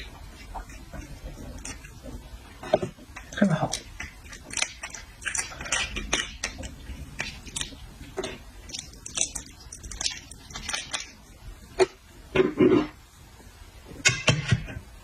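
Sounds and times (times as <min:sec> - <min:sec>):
person chewing: 0:00.0 - 0:11.9.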